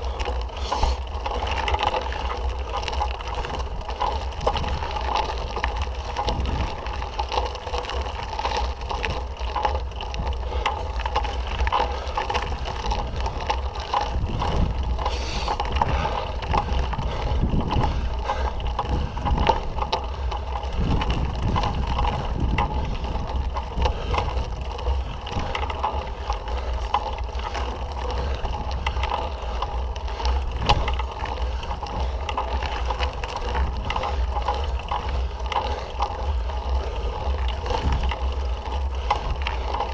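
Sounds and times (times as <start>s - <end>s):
bike rattles and clicks: 0.0s - 39.9s
bike tyre noise: 0.0s - 39.9s
wind rumble on microphone: 0.0s - 39.9s.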